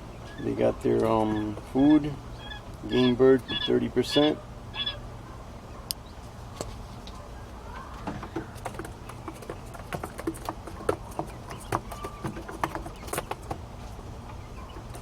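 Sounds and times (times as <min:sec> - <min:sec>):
chicks pecking at feed: 0:00.2 - 0:02.2, 0:06.6 - 0:15.0.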